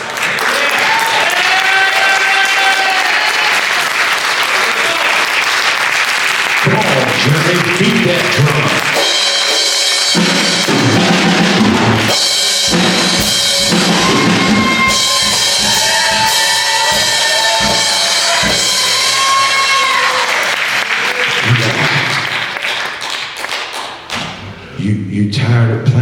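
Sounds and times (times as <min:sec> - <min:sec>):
drum kit playing: 0:06.6 - 0:22.2
held pitched notes: 0:06.8 - 0:20.3.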